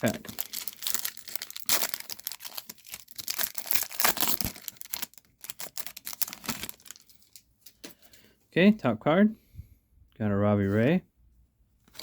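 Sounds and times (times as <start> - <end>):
card pack wrapper tearing and crumpling: 0.0 - 7.4.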